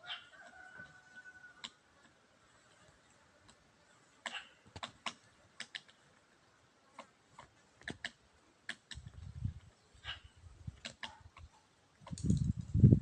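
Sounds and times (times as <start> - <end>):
woodpecker pecking: 4.2 - 6.0, 7.0 - 9.2.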